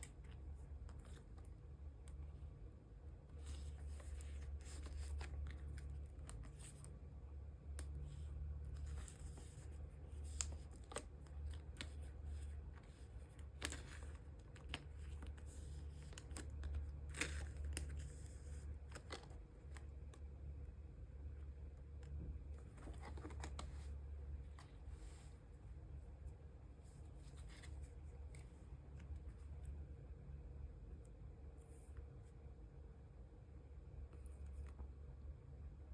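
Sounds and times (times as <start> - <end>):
plastic card sleeves rustling: 3.3 - 6.9, 8.0 - 20.3, 22.6 - 25.6, 26.9 - 29.6.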